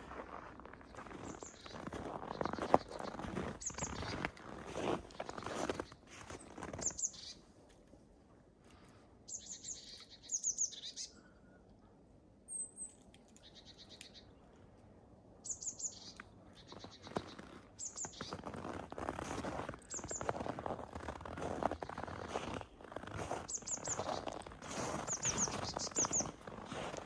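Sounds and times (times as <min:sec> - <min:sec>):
footsteps crunching in snow: 0:00.0 - 0:07.0, 0:16.7 - 0:27.0
songbird trilling: 0:09.3 - 0:11.1, 0:23.5 - 0:26.4.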